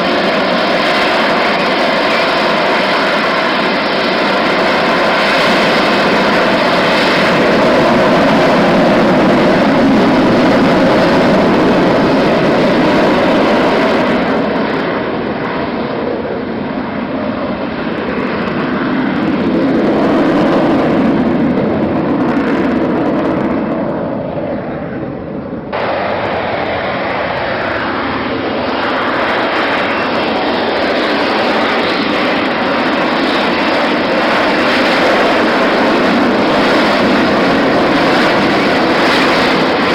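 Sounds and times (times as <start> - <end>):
aircraft engine flying past: 0.0 - 39.9.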